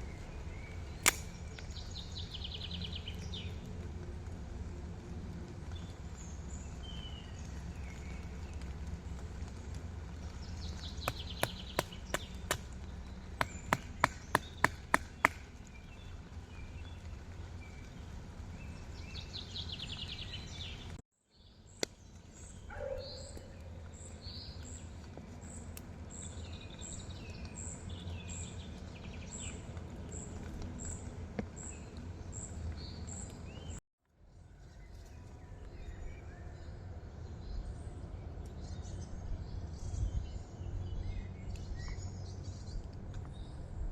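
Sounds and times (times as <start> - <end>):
birds chirping: 0.0 - 3.8, 5.6 - 33.8
sharp knocks: 13.4 - 15.4.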